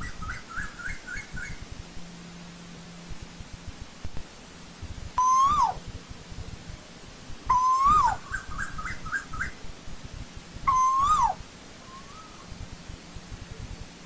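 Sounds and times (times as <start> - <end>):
bird calling: 5.2 - 5.8, 7.5 - 9.6, 10.7 - 12.5
short higher bird notes: 5.2 - 5.8, 10.7 - 12.5.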